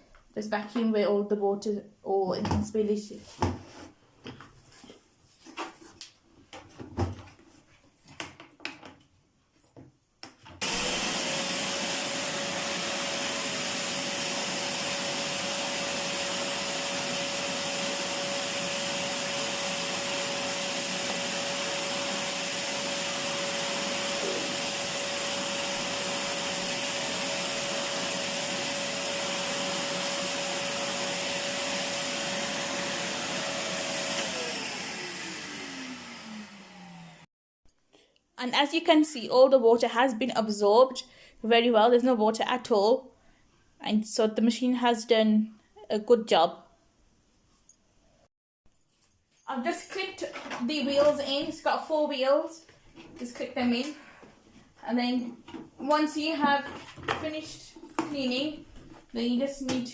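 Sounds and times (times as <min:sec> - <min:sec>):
vacuum cleaner sucking water: 0:10.6 - 0:37.3.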